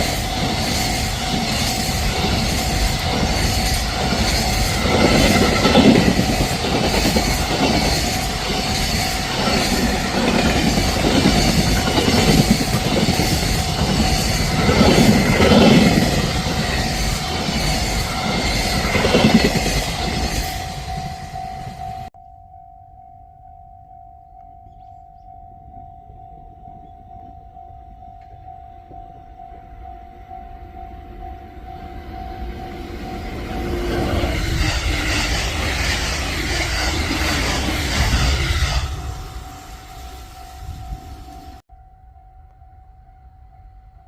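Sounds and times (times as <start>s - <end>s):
train wheels clattering: 0.0s - 22.1s, 33.1s - 40.4s
level crossing alarm tone: 25.4s - 35.9s.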